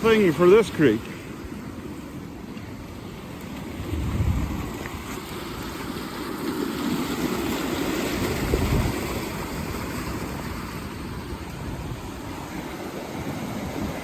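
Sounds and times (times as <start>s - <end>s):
creek rushing: 0.0s - 14.0s
low rumble: 3.8s - 5.1s.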